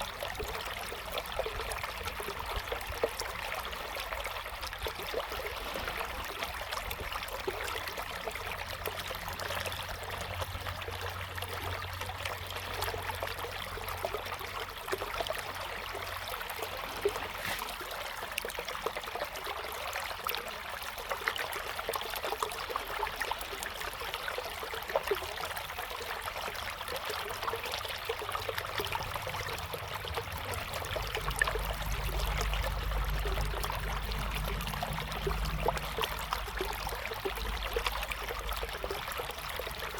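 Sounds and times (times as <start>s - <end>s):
river water babbling: 0.0s - 39.9s
low rumble: 28.6s - 39.8s.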